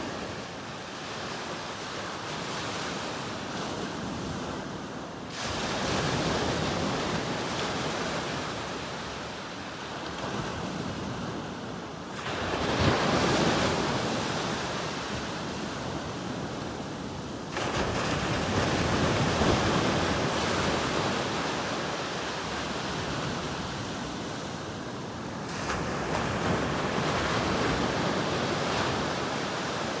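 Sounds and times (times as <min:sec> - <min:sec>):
sea waves breaking on shore: 0:12.1 - 0:30.0.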